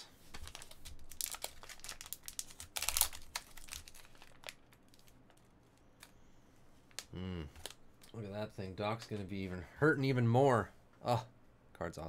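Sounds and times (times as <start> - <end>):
plastic packaging crinkling: 0.2 - 6.1.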